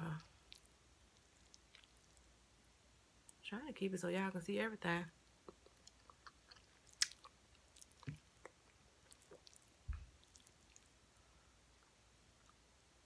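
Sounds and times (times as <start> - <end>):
chewing with wet mouth clicks: 0.2 - 2.2, 5.3 - 11.0.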